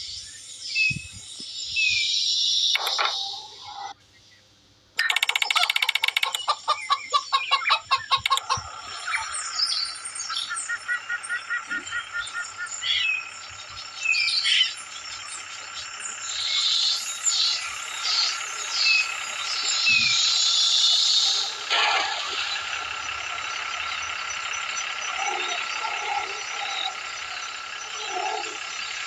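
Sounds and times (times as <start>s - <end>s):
birds chirping: 0.0s - 29.0s
rattling run of clicks: 2.8s - 3.3s, 5.0s - 6.7s, 8.0s - 9.0s.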